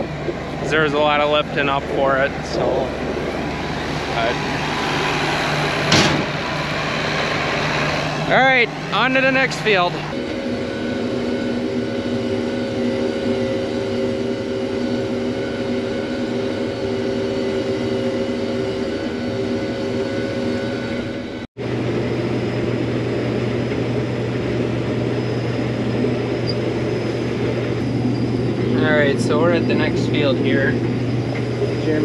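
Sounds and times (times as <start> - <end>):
farm vehicle engine running: 0.0 - 32.0
steady low hum: 0.0 - 32.0.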